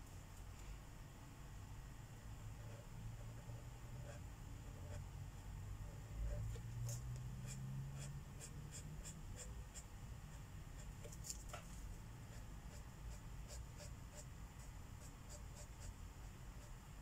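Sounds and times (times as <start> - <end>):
faint low hum: 0.0 - 17.0
marker scratching on paper: 5.8 - 11.2, 12.3 - 16.8.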